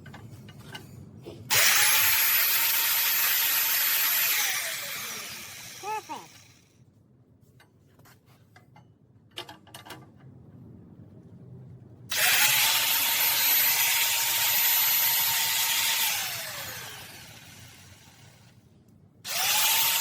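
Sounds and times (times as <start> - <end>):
power tool whining: 1.5 - 6.5, 12.1 - 18.3, 19.3 - 20.0.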